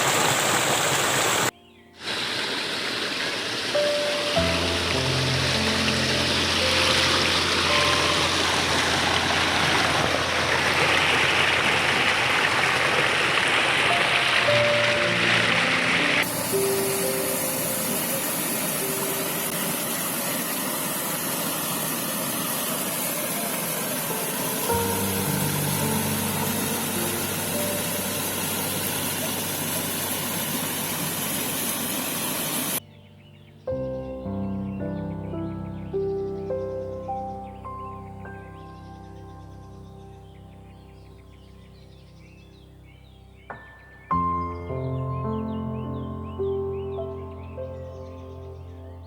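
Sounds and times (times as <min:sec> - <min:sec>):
brook water running: 0:00.0 - 0:32.9.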